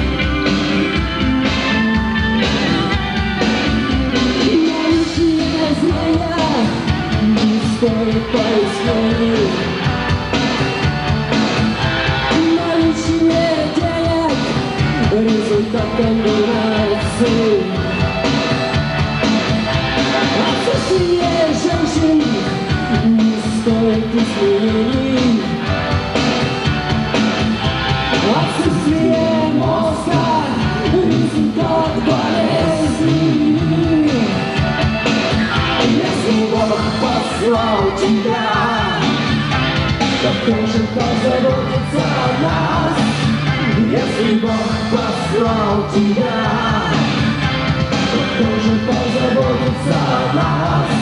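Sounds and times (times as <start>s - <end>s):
live rock band playing: 0.0s - 51.0s
person singing: 4.2s - 9.8s, 12.2s - 18.0s, 20.2s - 25.6s, 28.2s - 34.6s, 35.8s - 39.4s, 40.2s - 47.2s, 48.0s - 51.0s.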